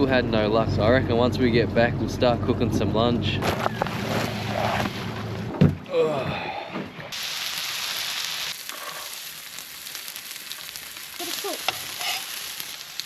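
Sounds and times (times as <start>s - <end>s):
meat sizzling in a pan: 7.2s - 13.0s.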